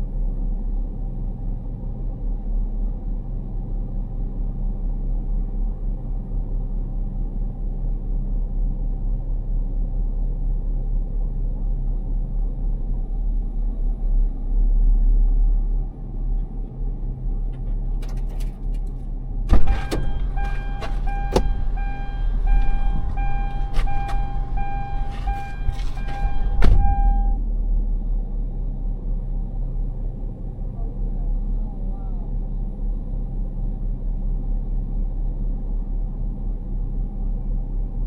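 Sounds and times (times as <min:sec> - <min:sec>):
vehicle low rumble: 0:00.0 - 0:38.0
clicks and knocks: 0:18.0 - 0:27.2
electronic warning tone: 0:19.5 - 0:27.4.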